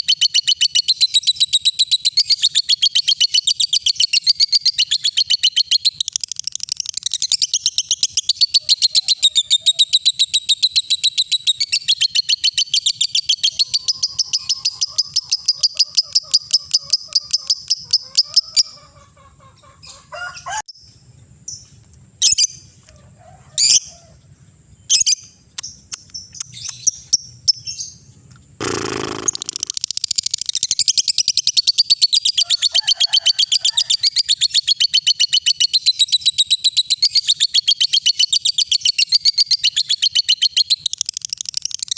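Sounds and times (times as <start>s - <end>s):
bird chirps: 0.0s - 18.9s, 23.6s - 32.8s, 34.0s - 41.9s
lovebird chattering: 0.1s - 18.8s, 28.6s - 32.3s.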